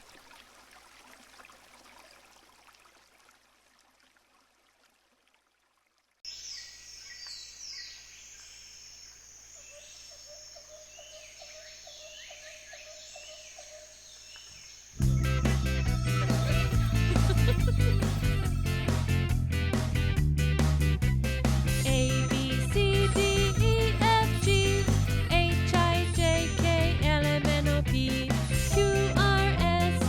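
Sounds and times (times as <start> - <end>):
stream of running water: 0.0 - 9.4
birds chirping: 6.3 - 19.4.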